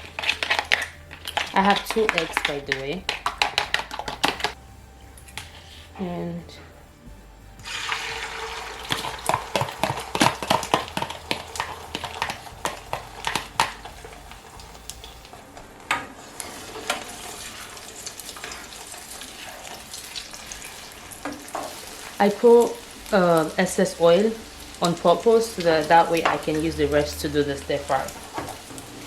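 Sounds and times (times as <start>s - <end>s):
utensil scraping a pan: 0.0s - 4.6s, 5.3s - 6.7s, 7.6s - 15.4s, 16.0s - 23.6s
eggs sizzling in hot oil: 0.0s - 6.6s, 7.5s - 29.0s.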